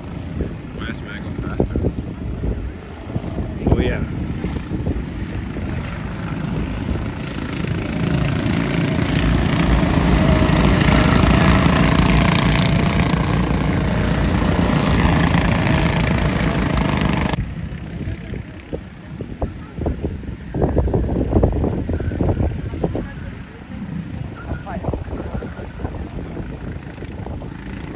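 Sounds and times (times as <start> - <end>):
go-kart engines buzzing: 2.1 - 18.9.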